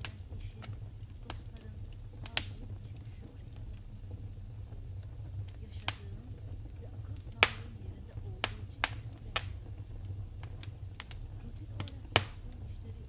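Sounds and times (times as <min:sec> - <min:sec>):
fire popping: 0:00.0 - 0:13.0
low rumble: 0:00.0 - 0:13.0
wood fire crackling: 0:00.0 - 0:13.0.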